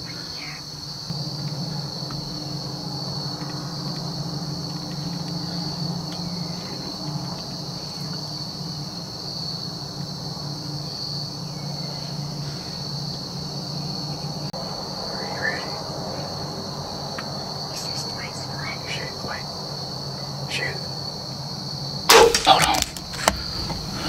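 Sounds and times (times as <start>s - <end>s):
insects trilling: 0.0s - 24.0s
low steady hum: 1.1s - 8.6s.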